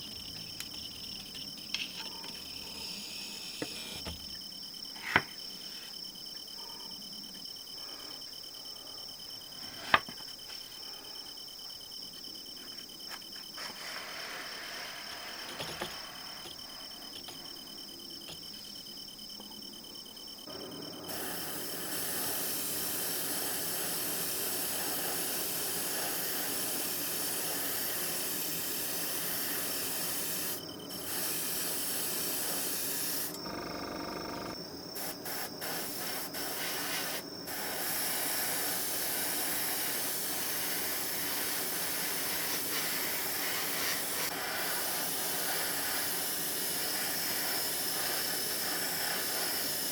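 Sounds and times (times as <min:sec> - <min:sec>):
insect chirring: 0:00.0 - 0:49.9
airbrush spraying hiss: 0:13.6 - 0:16.9, 0:21.1 - 0:33.4, 0:35.0 - 0:49.9.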